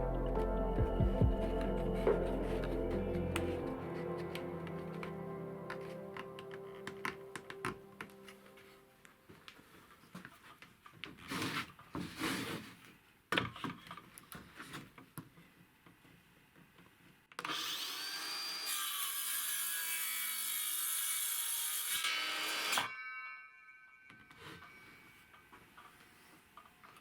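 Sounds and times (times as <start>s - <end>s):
wood scraping and rubbing: 1.4s - 6.6s
power tool cutting wood: 17.4s - 22.9s.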